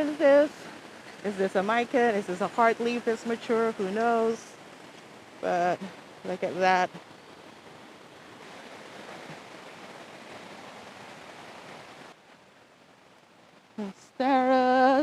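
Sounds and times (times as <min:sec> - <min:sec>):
person speaking: 0:00.0 - 0:04.5, 0:05.4 - 0:07.0
faint background hiss: 0:00.0 - 0:15.0
rain on foliage: 0:00.0 - 0:15.0.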